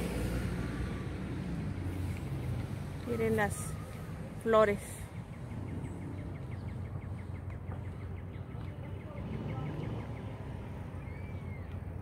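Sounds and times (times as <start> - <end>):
rising and falling bird whistle: 11.0 - 11.8.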